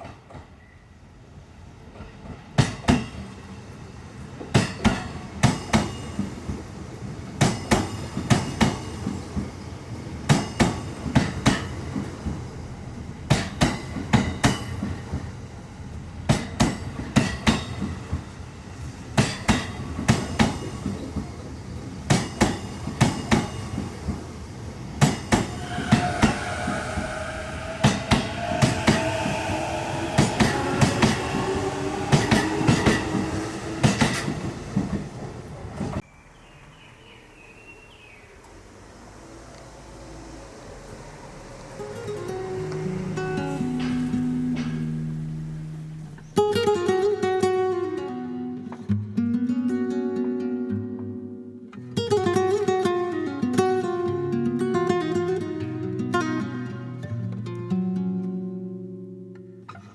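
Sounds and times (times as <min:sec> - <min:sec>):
train wheels clacking over rail joints: 0:04.2 - 0:15.4, 0:16.2 - 0:36.0, 0:38.4 - 0:46.4
high steady whining tone: 0:25.2 - 0:35.6.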